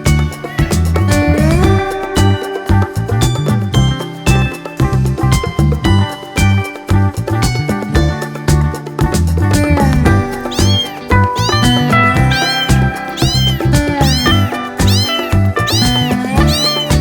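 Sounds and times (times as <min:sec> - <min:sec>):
upbeat background music: 0:00.0 - 0:17.0
kitten meowing: 0:10.4 - 0:17.0.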